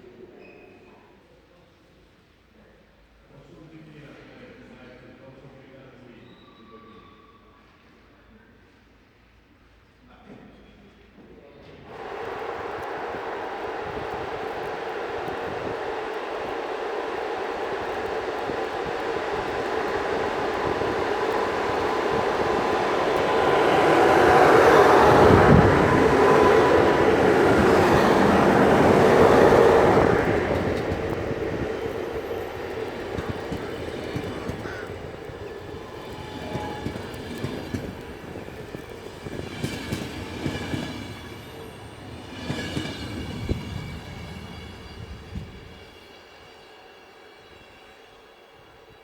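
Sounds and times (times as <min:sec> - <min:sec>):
train rumbling past: 0:11.8 - 0:49.0.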